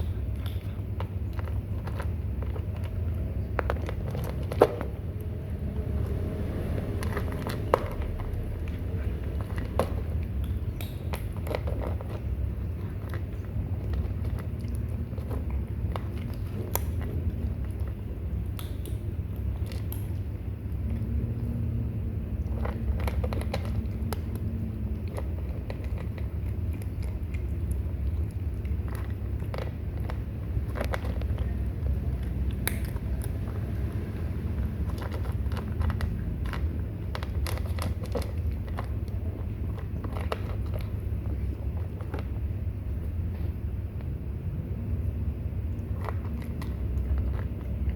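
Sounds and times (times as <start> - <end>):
kittens chewing food: 0.0 - 47.9
steady low rumble: 0.0 - 47.9
low rumble: 1.2 - 18.6.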